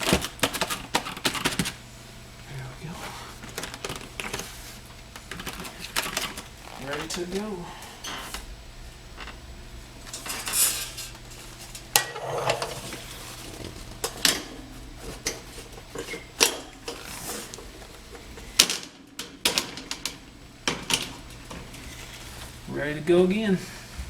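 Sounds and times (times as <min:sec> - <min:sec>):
sheet metal clinking and scraping: 0:10.1 - 0:13.1.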